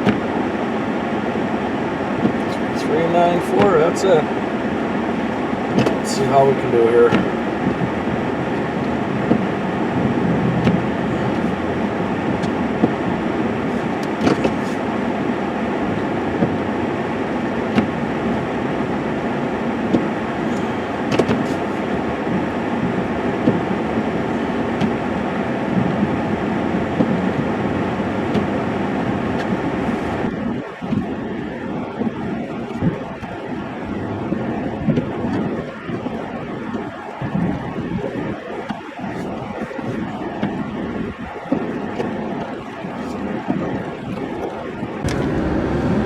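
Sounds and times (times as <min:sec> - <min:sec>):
short knocks and clunks: 0:13.7 - 0:14.8
snow plow truck pushing snow: 0:45.0 - 0:46.0.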